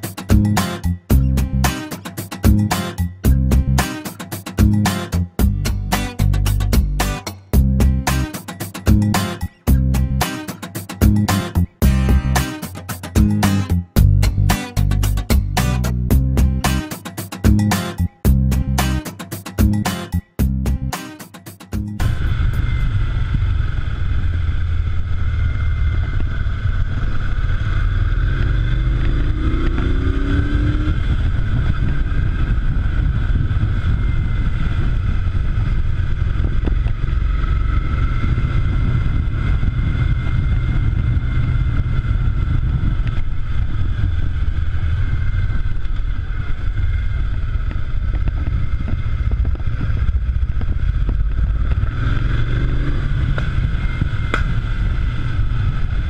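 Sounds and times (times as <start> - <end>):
motorcycle engine running: 0.0 - 21.0, 21.8 - 56.0
wind rumble: 22.0 - 56.0.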